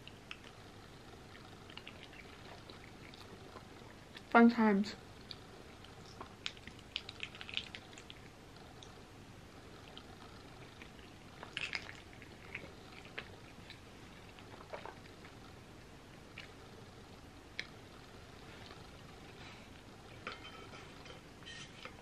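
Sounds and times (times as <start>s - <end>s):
person chewing: 10.7s - 15.4s.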